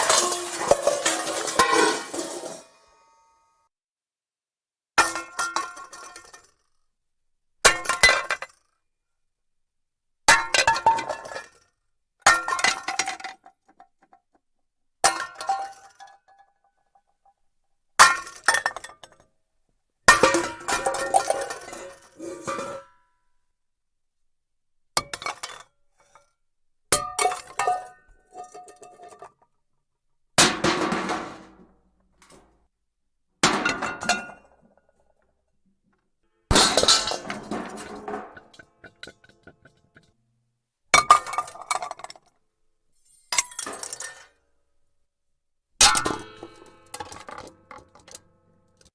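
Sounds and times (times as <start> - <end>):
pots and pans clattering: 0.0 - 2.8, 20.1 - 22.9, 30.4 - 32.4, 36.5 - 40.1.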